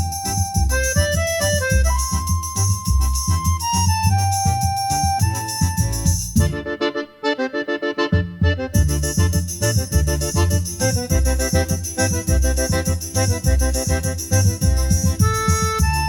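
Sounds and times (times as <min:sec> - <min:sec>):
bass beat and percussion: 0:00.0 - 0:06.7, 0:08.2 - 0:16.0
accordion melody: 0:00.0 - 0:16.0.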